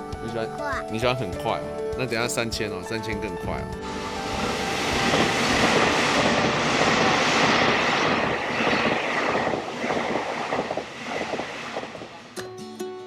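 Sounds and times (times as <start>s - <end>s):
train passing at speed: 3.6s - 12.6s.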